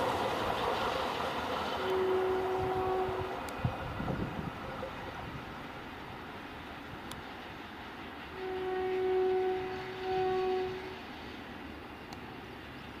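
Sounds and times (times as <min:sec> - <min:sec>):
train coaches rumbling on track: 0:00.0 - 0:13.0
locomotive horn blasts: 0:01.8 - 0:03.4, 0:08.4 - 0:11.0.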